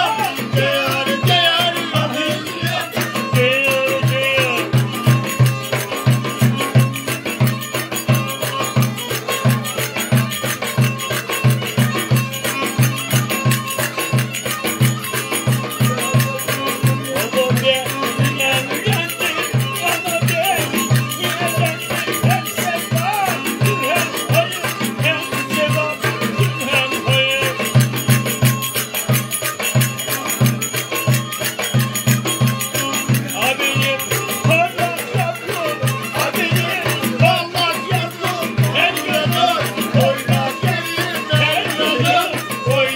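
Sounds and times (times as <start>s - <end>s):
fast drum beat: 0.0s - 42.9s.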